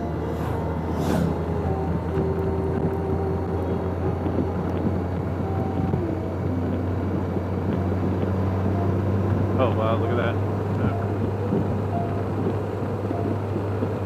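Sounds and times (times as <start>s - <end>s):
motorcycle engine running: 0.0s - 14.0s
wind noise on microphone: 0.0s - 14.0s.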